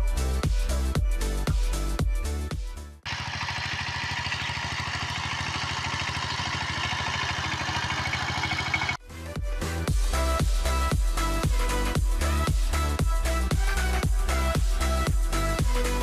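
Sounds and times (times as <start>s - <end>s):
engine idling: 3.1s - 9.0s.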